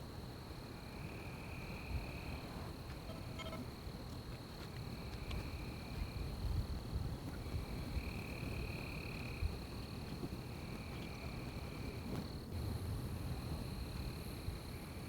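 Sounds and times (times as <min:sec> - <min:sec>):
lower insect trill: 0:00.3 - 0:06.5, 0:07.4 - 0:15.0
high-pitched insect call: 0:00.6 - 0:06.4.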